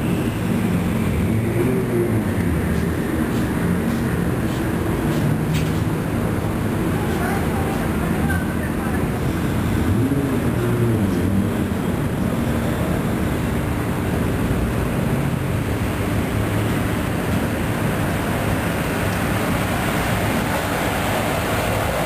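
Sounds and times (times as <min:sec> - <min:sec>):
car engines running at low speed: 0:00.0 - 0:22.0.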